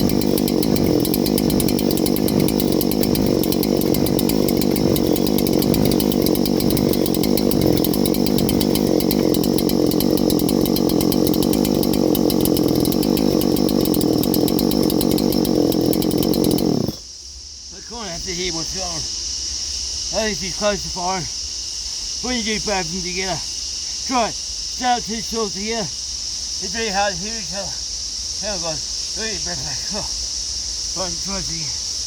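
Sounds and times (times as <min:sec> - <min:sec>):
chainsaw engine running: 0:00.0 - 0:17.0.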